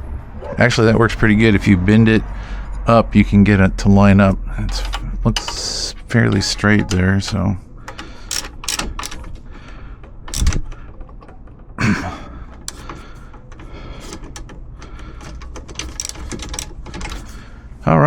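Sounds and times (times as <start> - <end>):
tools clicking and knocking on metal: 4.6 - 17.8.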